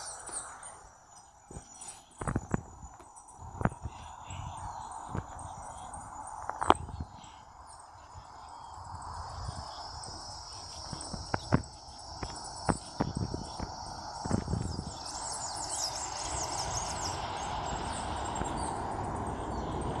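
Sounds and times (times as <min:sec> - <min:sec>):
high insect drone: 0:00.0 - 0:20.0
rapid high chirps: 0:07.8 - 0:19.9.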